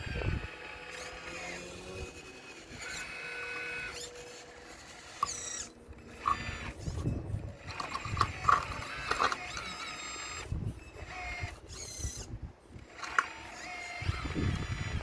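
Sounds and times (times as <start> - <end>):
electric motor whining: 0.0 - 15.0
stones knocking and grinding: 7.7 - 9.7.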